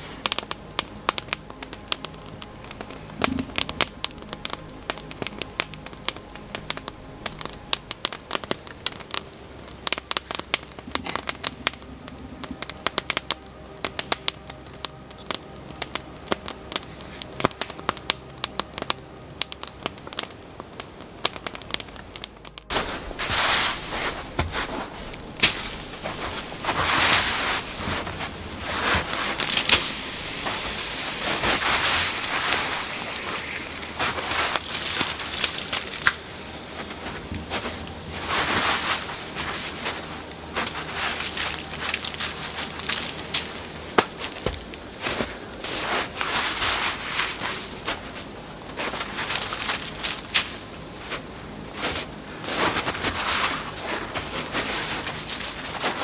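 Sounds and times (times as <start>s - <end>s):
campfire crackling and popping: 0.0s - 56.0s
rough rushing noise: 22.7s - 41.8s.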